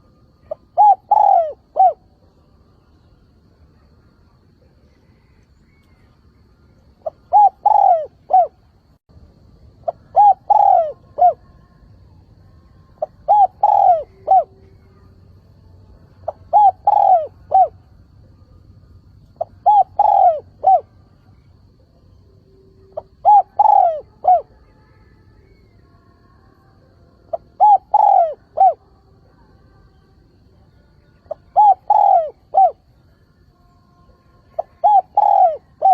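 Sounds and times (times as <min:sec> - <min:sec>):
dove cooing: 0:00.0 - 0:02.2, 0:07.0 - 0:08.6, 0:09.8 - 0:11.6, 0:13.0 - 0:15.0, 0:16.2 - 0:17.8, 0:19.3 - 0:21.0, 0:22.8 - 0:24.7, 0:27.3 - 0:28.9, 0:31.3 - 0:32.9, 0:34.5 - 0:35.9.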